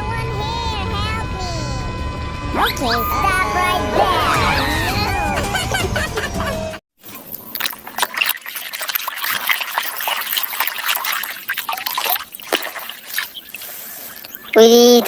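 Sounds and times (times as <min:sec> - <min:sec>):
water trickling and splashing: 0:07.0 - 0:15.0.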